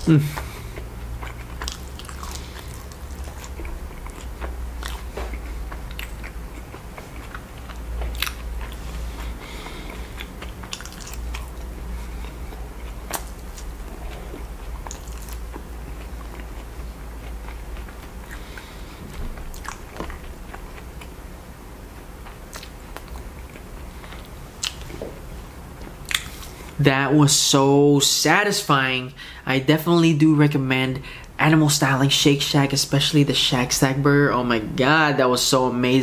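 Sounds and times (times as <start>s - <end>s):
low steady hum: 0.0s - 36.0s
chewing: 0.3s - 21.2s, 22.2s - 25.0s, 25.8s - 26.8s
wet mouth clicks: 26.1s - 26.4s.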